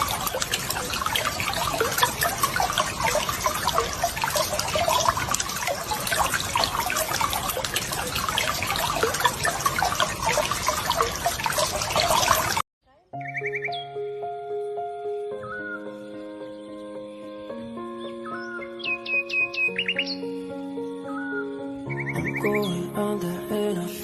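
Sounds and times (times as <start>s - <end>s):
water bubbling and trickling: 0.0s - 12.7s, 21.1s - 23.0s.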